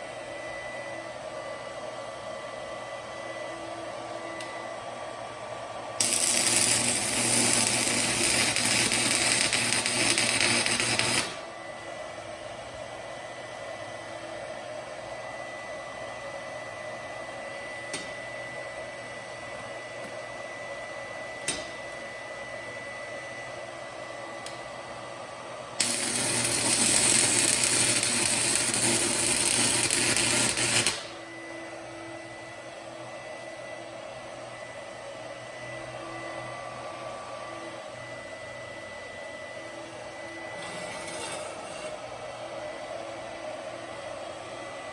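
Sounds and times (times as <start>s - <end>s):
welder hum with high tone: 0.0s - 44.9s
welding arc crackling and hissing: 6.0s - 11.4s, 25.8s - 31.1s.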